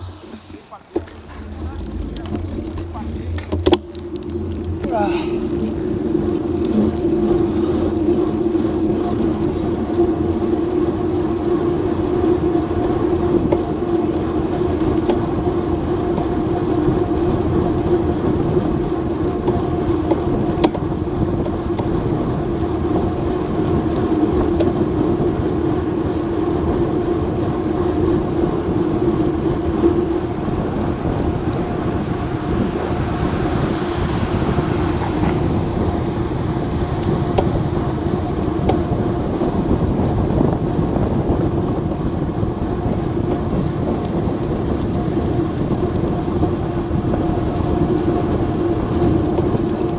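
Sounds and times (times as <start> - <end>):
constant hum: 0.0 - 49.9
wind rushing over microphone: 0.0 - 49.9.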